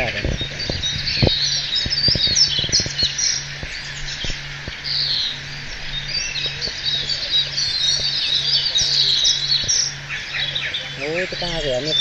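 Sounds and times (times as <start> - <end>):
birds chirping and trilling: 0.0 - 12.0
low pulsing hum: 0.0 - 12.0.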